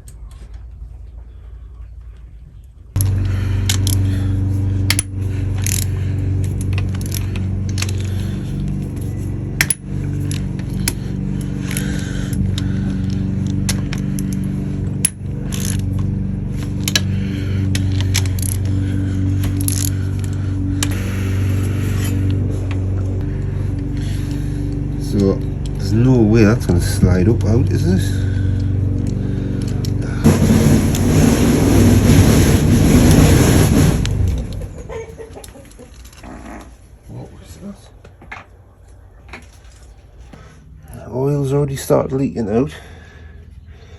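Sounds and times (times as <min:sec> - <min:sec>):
steady low hum: 0:00.0 - 0:43.9
metal tools clinking on engine parts: 0:03.0 - 0:21.0, 0:39.3 - 0:40.3.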